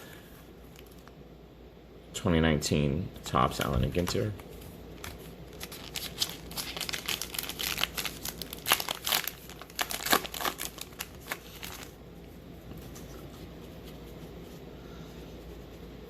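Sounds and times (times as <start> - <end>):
card pack wrapper tearing and crinkling: 5.0 - 12.0.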